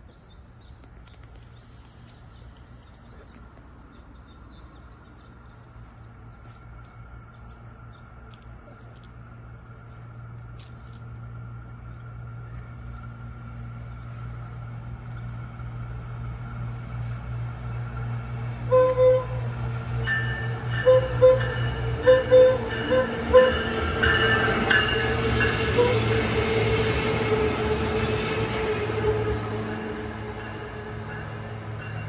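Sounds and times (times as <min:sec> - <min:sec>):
small birds chirping: 0:00.0 - 0:11.1
train engine hum and whine: 0:00.0 - 0:32.0.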